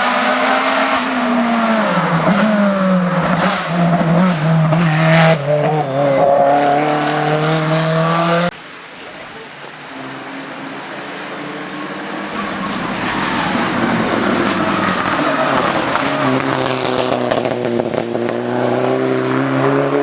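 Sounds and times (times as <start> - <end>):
race car engine running hard: 10.9 - 20.0.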